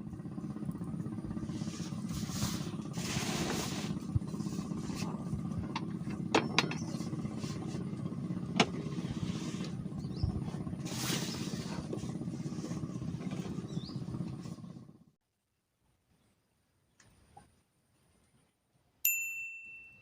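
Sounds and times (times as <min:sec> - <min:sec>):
engine humming steadily: 0:00.0 - 0:15.2.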